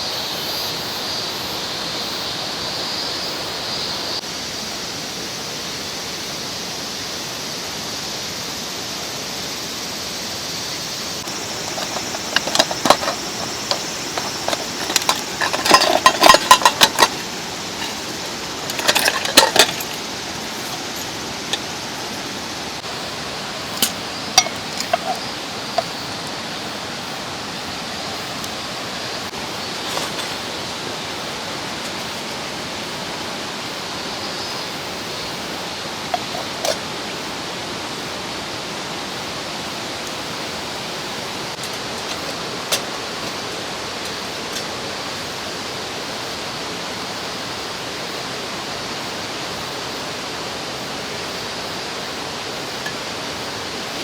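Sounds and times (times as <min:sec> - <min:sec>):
mountain stream running: 0:00.0 - 0:54.0
camp gear clinking and knocking: 0:11.2 - 0:26.5, 0:29.6 - 0:32.6, 0:36.0 - 0:37.0, 0:41.4 - 0:45.0, 0:52.8 - 0:54.0.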